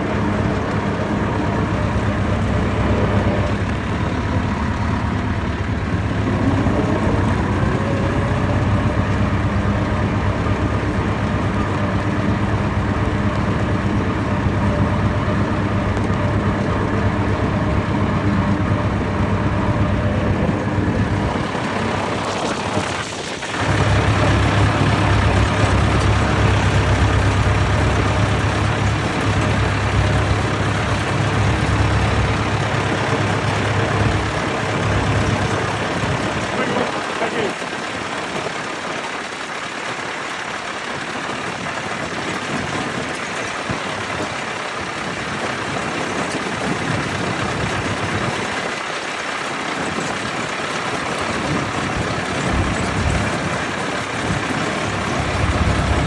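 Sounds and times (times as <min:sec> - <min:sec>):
deeper engine note: 0:00.0 - 0:38.7, 0:51.1 - 0:56.0
tractor engines running: 0:00.0 - 0:56.0.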